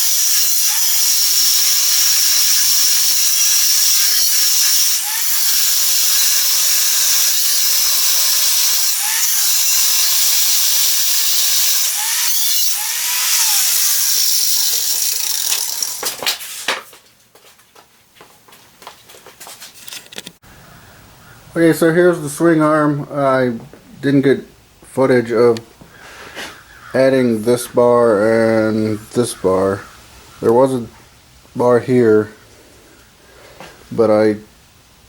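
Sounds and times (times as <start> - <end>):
power tool hissing on metal: 0.0 - 16.6.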